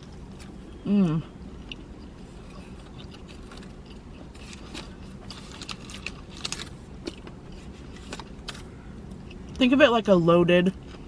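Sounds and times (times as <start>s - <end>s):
person chewing food: 0.0s - 9.6s
steady low rumble: 0.0s - 11.0s.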